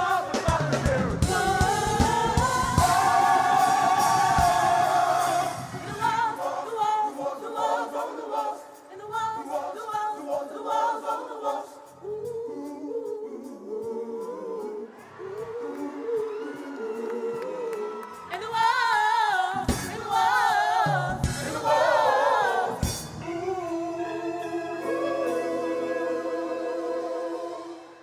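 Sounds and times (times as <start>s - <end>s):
drum hits: 0.0s - 6.5s, 19.7s - 20.3s
gospel choir singing: 0.0s - 28.0s.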